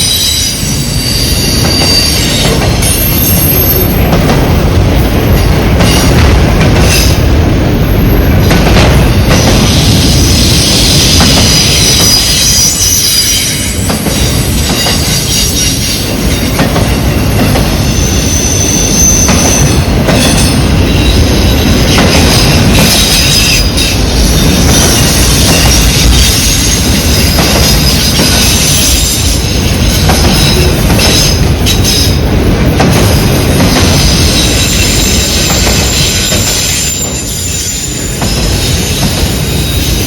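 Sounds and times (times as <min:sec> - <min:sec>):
wheel squeal: 0:00.0 - 0:03.9, 0:09.7 - 0:16.0
train cars rumbling: 0:00.0 - 0:40.0.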